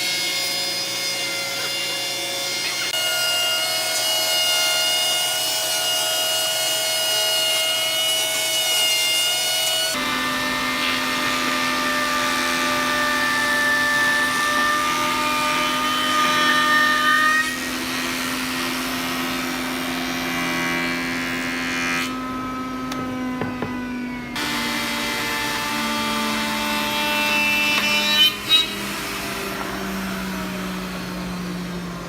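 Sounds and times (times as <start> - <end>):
power tools whining on wood: 9.9 - 32.0.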